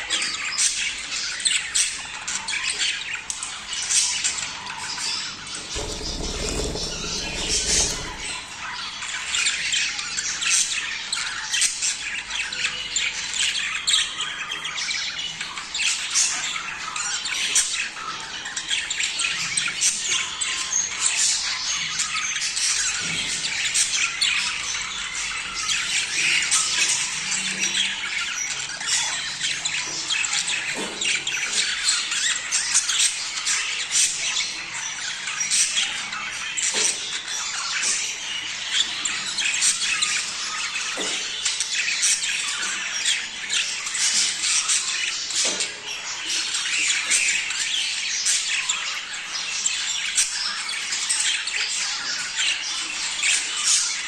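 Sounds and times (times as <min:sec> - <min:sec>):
budgerigars chattering and squawking: 0:05.7 - 0:08.3.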